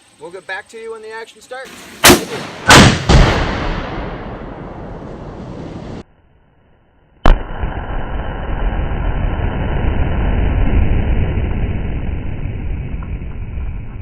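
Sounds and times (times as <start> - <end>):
sharp blast of target detonating: 2.0 - 5.5, 7.2 - 12.0
explosion rumble: 2.3 - 6.0, 7.2 - 14.0.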